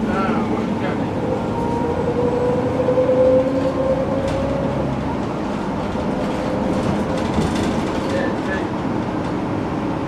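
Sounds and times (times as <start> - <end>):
bus engine rumbling: 0.0 - 10.0
rising whine: 0.8 - 5.2.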